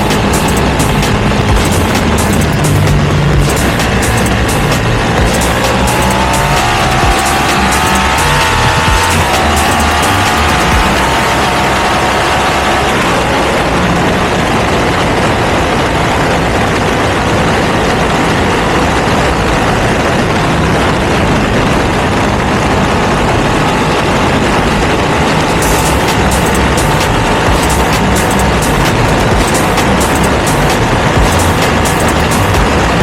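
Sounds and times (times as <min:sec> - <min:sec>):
loud steady rushing noise: 0:00.0 - 0:33.0
motorcycle engine: 0:00.0 - 0:33.0.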